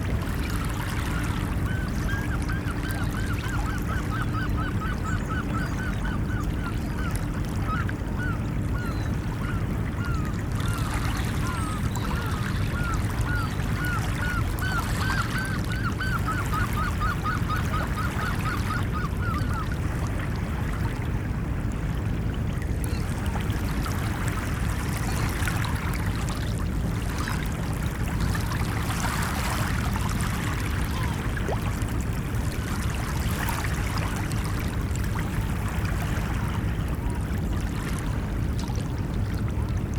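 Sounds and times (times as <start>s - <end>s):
ocean waves washing: 0.0s - 39.9s.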